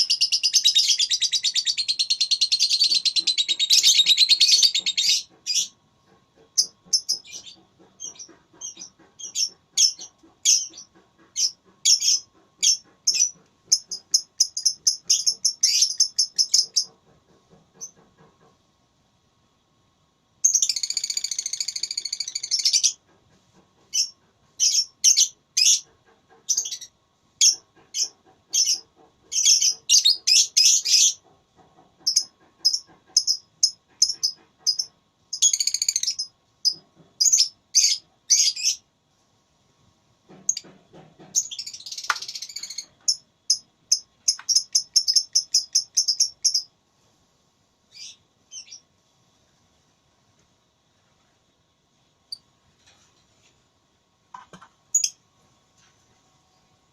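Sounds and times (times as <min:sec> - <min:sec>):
bird trilling: 0:00.0 - 0:05.7.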